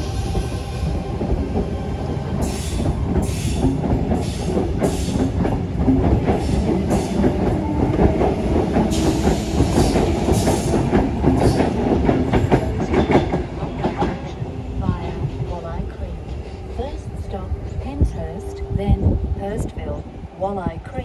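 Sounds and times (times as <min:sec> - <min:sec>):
train wheels rumbling on rail: 0:00.0 - 0:21.0
clacks over rail joints: 0:02.7 - 0:16.5.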